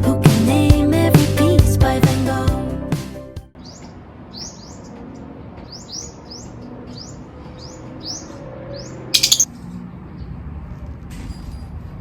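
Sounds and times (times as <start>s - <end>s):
bird chirping: 5.7s - 9.5s.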